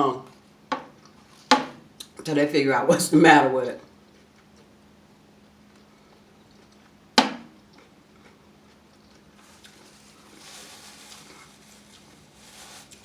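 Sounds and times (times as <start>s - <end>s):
soft chewing: 3.8s - 13.0s.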